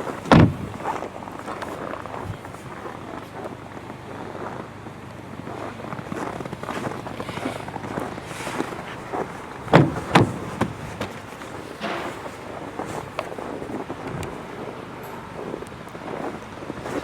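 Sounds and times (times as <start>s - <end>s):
loud thumps: 0.0s - 1.1s, 8.6s - 12.4s
steady background noise: 0.0s - 17.0s.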